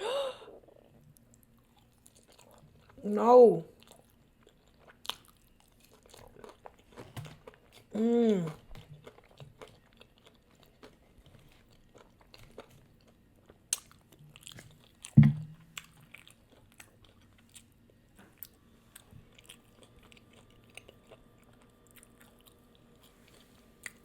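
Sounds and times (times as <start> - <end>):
crunchy chewing: 8.5 - 15.2, 18.4 - 24.0.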